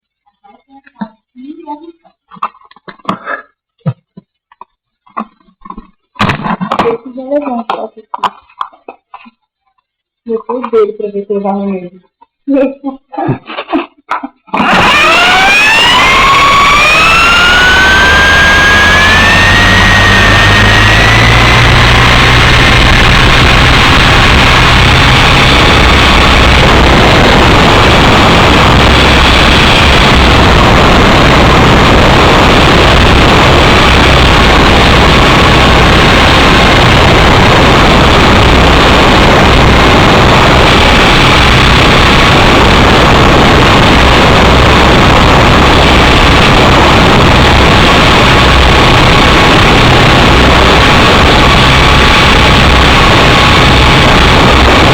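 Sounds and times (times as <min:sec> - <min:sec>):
model helicopter motor whining: 0:14.6 - 0:26.1
loud rushing noise: 0:14.6 - 0:54.9.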